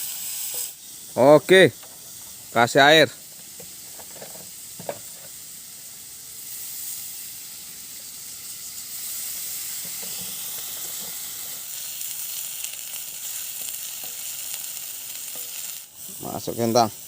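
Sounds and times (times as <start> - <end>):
clams sizzling in a wok: 0.0 - 17.0.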